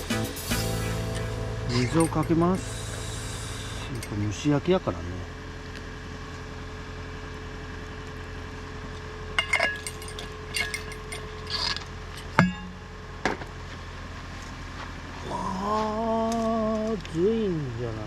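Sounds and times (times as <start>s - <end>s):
faint steady hum: 0.7s - 18.0s
metal cookware clinking: 1.7s - 2.6s, 9.4s - 12.9s.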